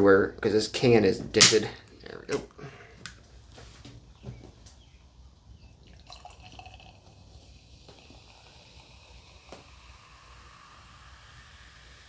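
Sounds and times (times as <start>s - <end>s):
beer pouring into a glass: 5.1s - 12.0s.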